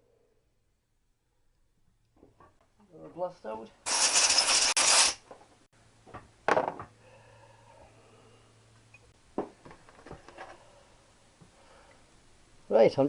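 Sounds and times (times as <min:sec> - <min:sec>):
pressurised spray hissing: 0:03.9 - 0:05.2.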